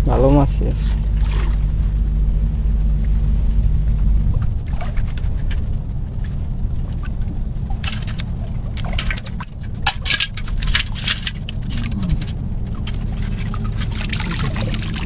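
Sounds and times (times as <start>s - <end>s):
low rumble of water: 0.0s - 15.0s
fish trap rattling and splashing: 4.7s - 15.0s.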